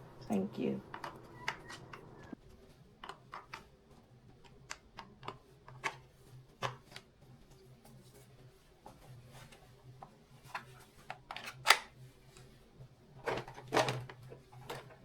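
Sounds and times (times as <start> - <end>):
low steady hum: 0.0 - 2.4.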